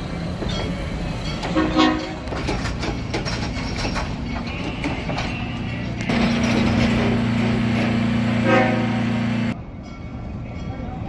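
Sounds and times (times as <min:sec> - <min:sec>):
train wheels clicking: 0:00.0 - 0:08.7
locomotive rumble: 0:00.0 - 0:11.0
train horn blast: 0:01.6 - 0:02.2, 0:07.1 - 0:09.6.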